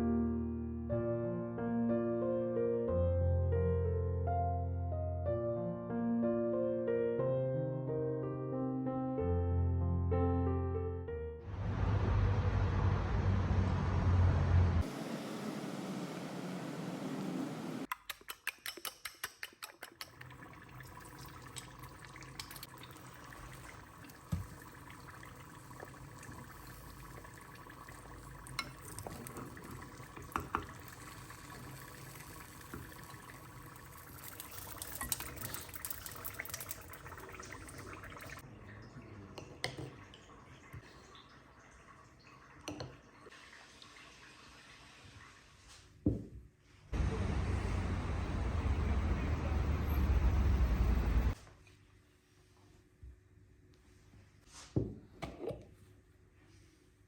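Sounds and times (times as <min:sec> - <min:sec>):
liquid pouring: 0:19.7 - 0:45.3.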